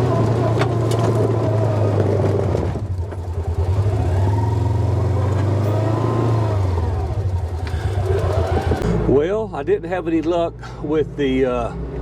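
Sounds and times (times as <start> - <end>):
engine revving under load: 0.0 - 9.2
low engine hum: 0.0 - 12.0.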